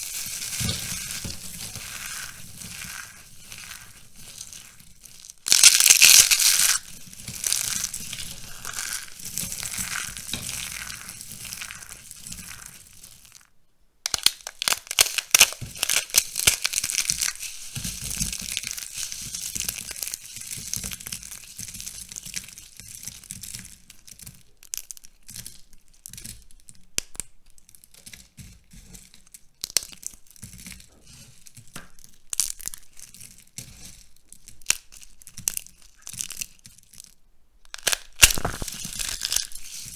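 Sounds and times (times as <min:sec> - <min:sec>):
dry soap crunching by hand: 0:00.0 - 0:13.5, 0:14.1 - 0:22.0, 0:32.0 - 0:39.9.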